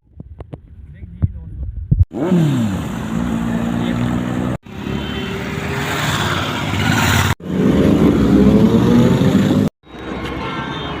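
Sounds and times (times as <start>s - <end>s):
motorcycle engines accelerating: 2.1s - 9.7s.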